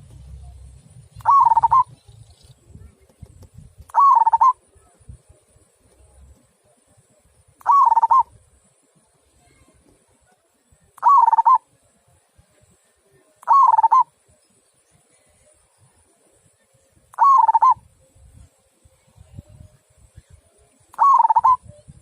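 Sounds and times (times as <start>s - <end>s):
dove cooing: 1.2s - 2.0s, 3.9s - 4.6s, 7.6s - 8.3s, 11.0s - 11.6s, 13.4s - 14.1s, 17.2s - 17.8s, 20.9s - 21.7s.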